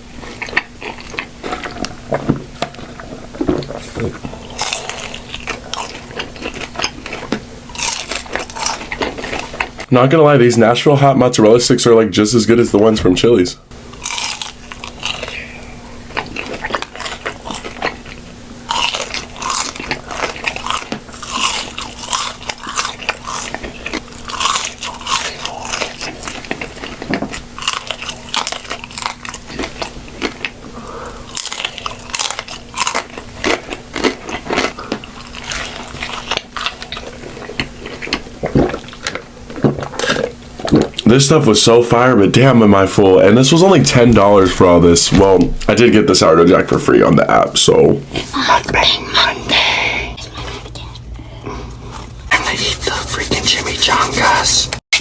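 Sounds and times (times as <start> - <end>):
faint steady hum: 0.0 - 55.0
crunchy bites and chewing: 2.7 - 9.9, 13.9 - 41.1.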